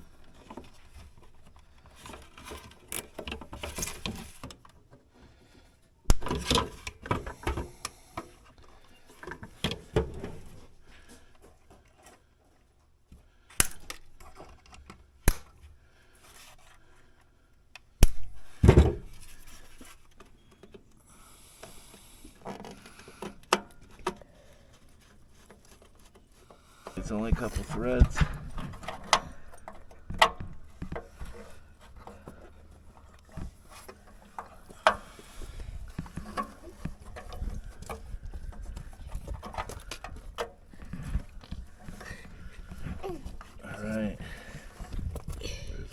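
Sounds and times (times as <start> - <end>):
sharp clicks and knocks: 26.9 - 32.4.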